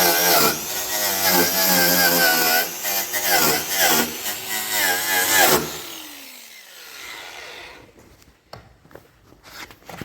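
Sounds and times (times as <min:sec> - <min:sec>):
power tool winding down: 0:00.0 - 0:07.8.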